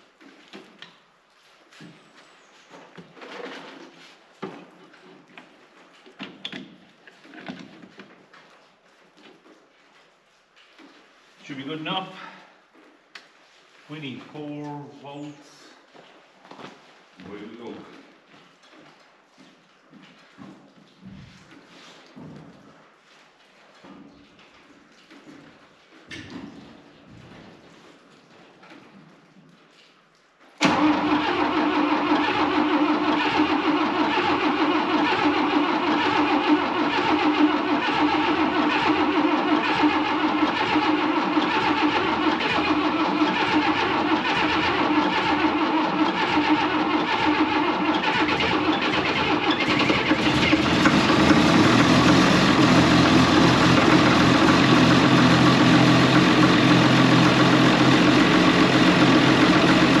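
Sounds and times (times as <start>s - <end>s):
diesel engine cranking: 30.6s - 60.0s
diesel engine running: 30.7s - 60.0s.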